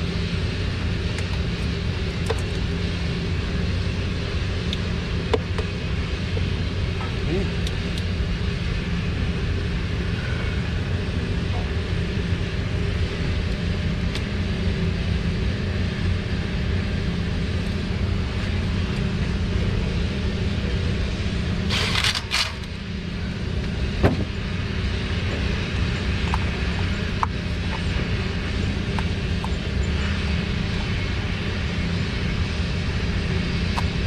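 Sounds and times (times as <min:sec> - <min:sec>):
motor humming: 0:21.2 - 0:34.0.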